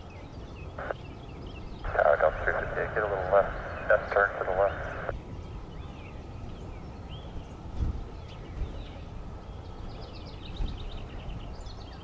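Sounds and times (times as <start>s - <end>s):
small birds chirping: 1.8s - 5.1s
low outdoor rumble: 1.9s - 5.1s.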